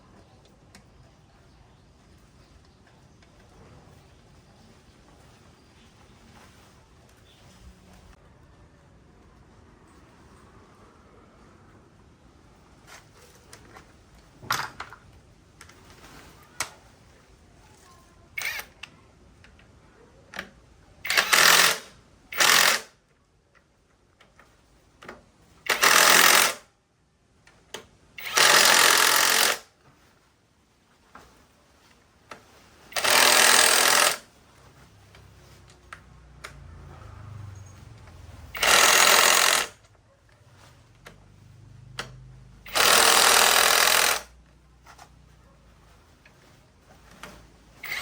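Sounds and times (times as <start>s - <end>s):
workshop tool running: 18.4s - 18.7s, 21.0s - 22.9s, 25.7s - 26.6s, 28.2s - 29.7s, 32.8s - 34.4s, 36.4s - 39.9s, 41.4s - 44.4s, 47.2s - 48.0s.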